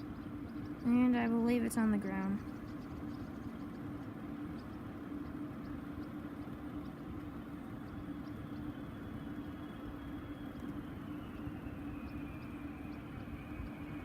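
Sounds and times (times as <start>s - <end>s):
faint high engine whine: 0.0s - 14.0s
jet engines droning: 0.0s - 14.0s.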